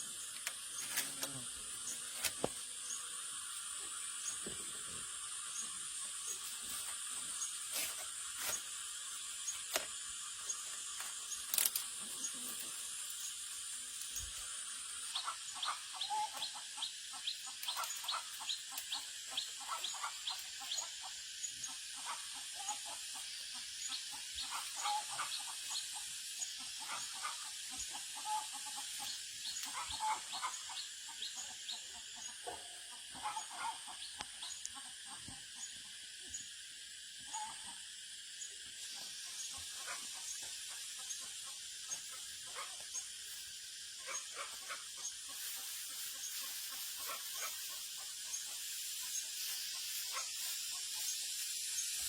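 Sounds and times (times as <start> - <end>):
steady high hiss: 0.0 - 52.0
chickens clucking: 15.0 - 21.1, 21.9 - 34.0, 38.9 - 43.4, 44.0 - 51.4.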